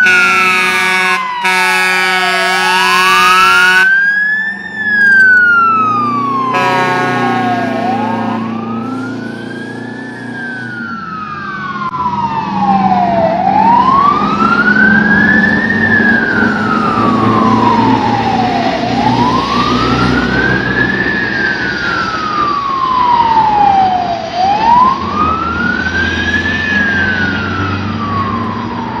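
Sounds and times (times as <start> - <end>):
air horn blast: 0.0 - 3.9, 6.5 - 9.0
fire truck siren wailing: 0.0 - 29.0
truck engines rumbling: 0.0 - 29.0.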